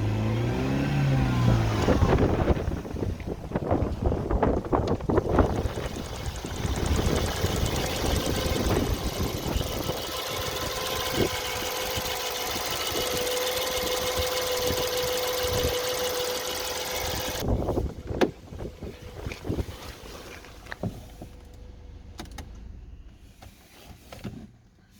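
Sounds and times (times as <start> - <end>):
car engine running: 1.0 - 19.6.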